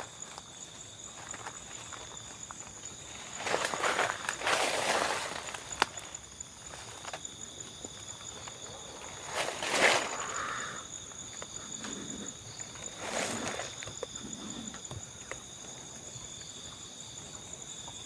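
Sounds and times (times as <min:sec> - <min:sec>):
insects chirring: 0:00.0 - 0:18.0
rustling noises: 0:01.1 - 0:07.3, 0:08.2 - 0:10.3, 0:12.6 - 0:14.8.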